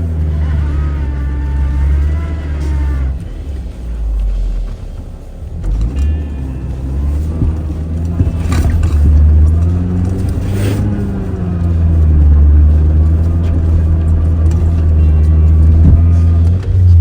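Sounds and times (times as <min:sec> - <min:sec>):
engine droning under load: 0:00.0 - 0:17.0.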